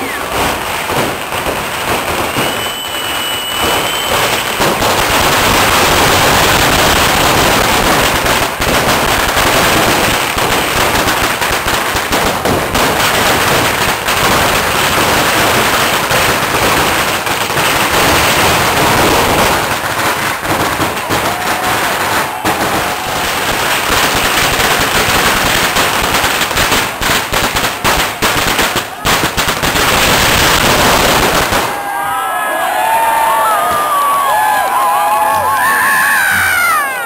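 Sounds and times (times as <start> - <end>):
fireworks crackling: 0.0 - 32.0.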